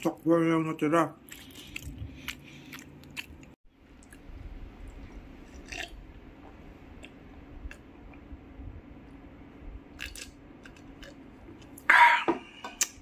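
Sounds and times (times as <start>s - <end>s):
chewing: 1.2s - 4.2s
sipping and swallowing: 5.4s - 6.0s.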